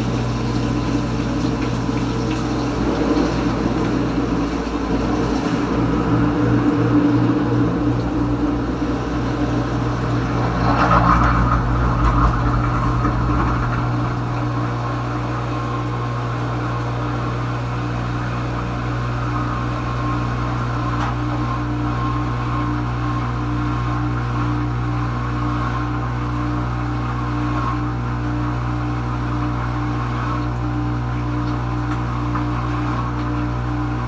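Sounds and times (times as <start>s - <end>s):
dishwasher water rushing: 0.0s - 25.1s
dishwasher motor hum: 0.0s - 34.0s.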